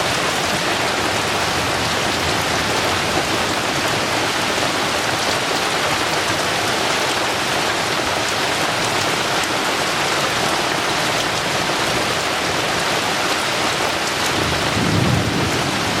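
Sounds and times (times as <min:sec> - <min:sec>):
heavy rain pouring: 0:00.0 - 0:16.0
thunder rumbling: 0:14.3 - 0:16.0.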